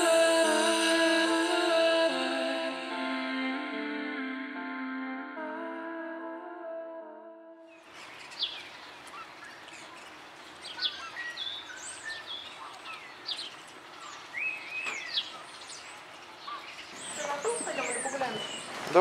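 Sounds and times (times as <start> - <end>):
birds chirping and calling: 7.7 - 19.0
steady outdoor hiss: 7.8 - 19.0.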